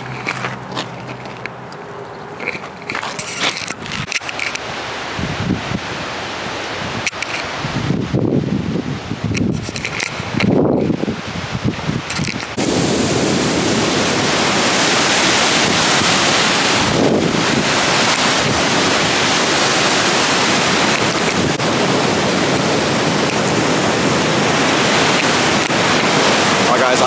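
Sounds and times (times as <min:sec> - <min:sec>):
waterfall rushing: 0:12.5 - 0:27.0.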